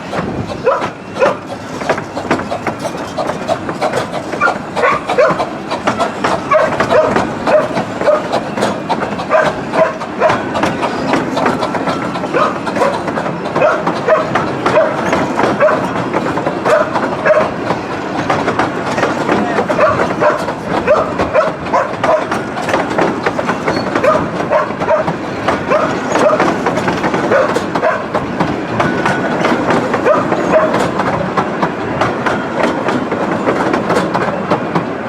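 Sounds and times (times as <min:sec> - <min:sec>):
miniature train wheels clicking: 0:00.0 - 0:34.9.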